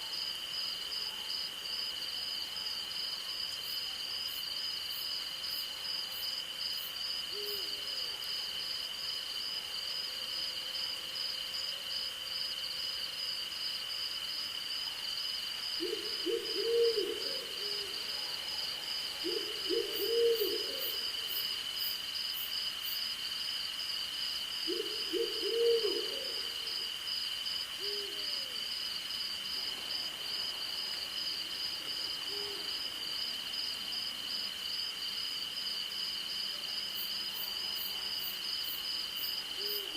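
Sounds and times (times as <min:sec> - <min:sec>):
owl hooting: 0:15.8 - 0:17.9, 0:19.2 - 0:21.0, 0:24.7 - 0:26.5.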